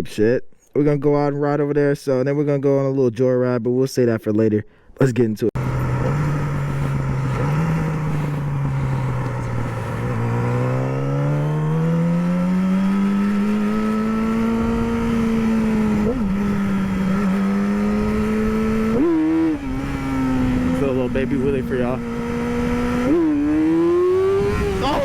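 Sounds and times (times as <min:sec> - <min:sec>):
motorcycle engine accelerating: 0:05.6 - 0:25.0.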